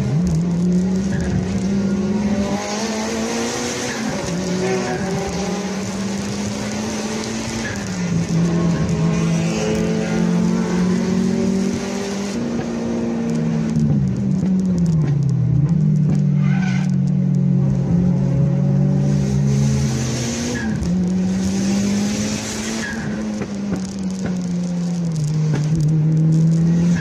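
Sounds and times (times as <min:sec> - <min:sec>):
car engines revving hard: 0:00.0 - 0:27.0
tyre squeals: 0:16.2 - 0:17.1, 0:22.6 - 0:23.4.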